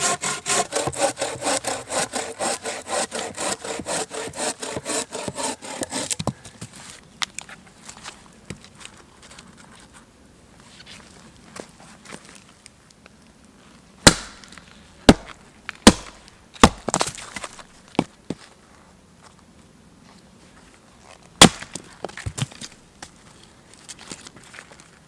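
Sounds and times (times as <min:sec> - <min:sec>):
axe chopping wood: 0:14.0 - 0:17.2, 0:21.4 - 0:21.8.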